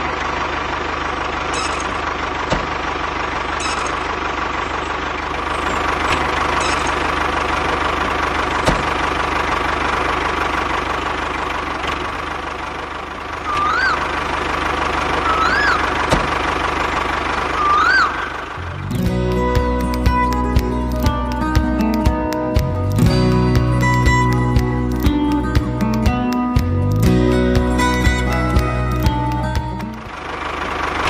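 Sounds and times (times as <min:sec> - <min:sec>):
tractor motor humming: 0:00.0 - 0:31.0
whistle-like chirps: 0:13.5 - 0:14.1, 0:15.2 - 0:15.9, 0:17.5 - 0:18.4
sharp clicks: 0:19.0 - 0:27.0.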